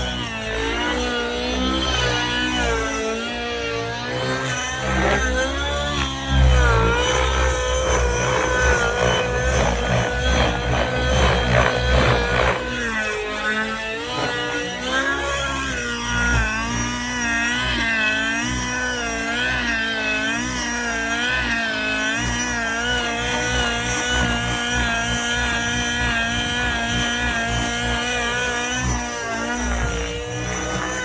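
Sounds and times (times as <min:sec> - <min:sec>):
model helicopter engine and rotor: 0:00.0 - 0:31.0.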